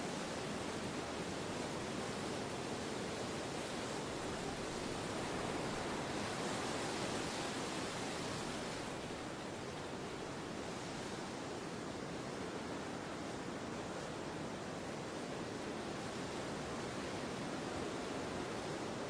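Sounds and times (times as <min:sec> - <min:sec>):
steady wind blowing: 0:01.0 - 0:10.5.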